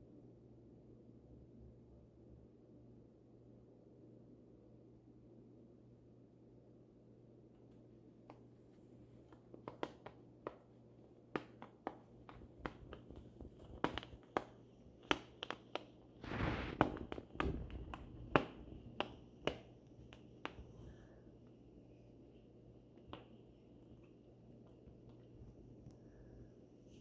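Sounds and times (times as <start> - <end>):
cat claws clicking and tapping: 9.2 - 16.2
scratchy rustle: 16.2 - 18.3.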